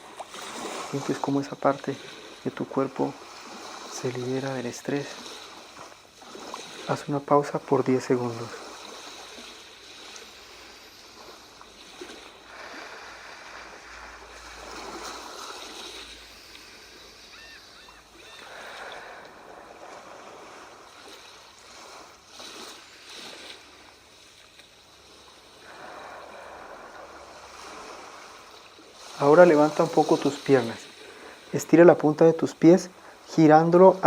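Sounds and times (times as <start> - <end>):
sea waves washing ashore: 0.0 - 34.0.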